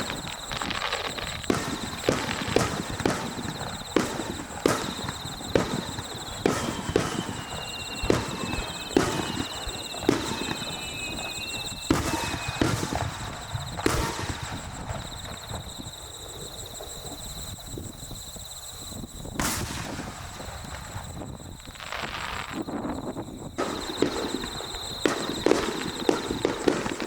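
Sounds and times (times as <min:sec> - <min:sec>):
high whistle sliding down: 0:00.0 - 0:16.6, 0:23.6 - 0:27.0
fireworks bursting: 0:00.0 - 0:18.2, 0:18.9 - 0:27.0.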